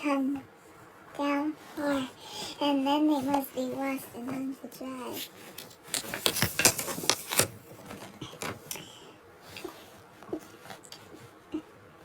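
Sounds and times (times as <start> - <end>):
small objects clicking and clattering: 5.6 - 8.8.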